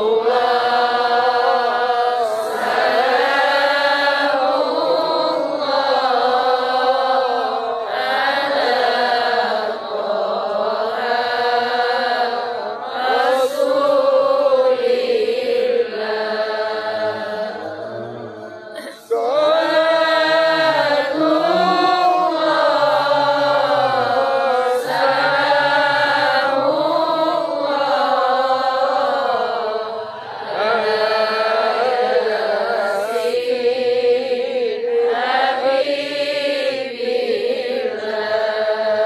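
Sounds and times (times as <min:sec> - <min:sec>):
man reciting in melodic style: 0:16.9 - 0:27.2.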